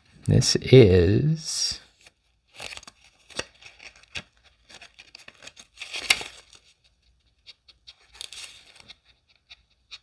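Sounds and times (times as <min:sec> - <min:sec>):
playing cards rustling and sliding: 0:01.9 - 0:06.9, 0:07.9 - 0:09.0.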